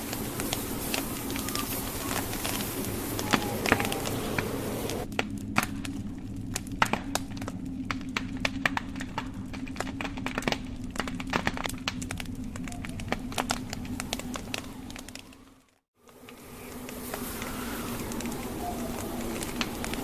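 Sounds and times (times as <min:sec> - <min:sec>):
wind hissing: 0:00.0 - 0:09.5, 0:10.1 - 0:20.0
low rumble: 0:00.0 - 0:15.7
burning logs popping: 0:00.0 - 0:20.0
wood fire crackling: 0:00.0 - 0:20.0.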